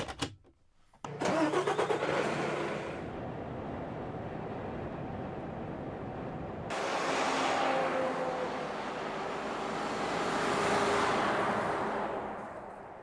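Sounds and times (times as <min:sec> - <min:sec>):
road vehicle driving past: 0:03.0 - 0:13.0.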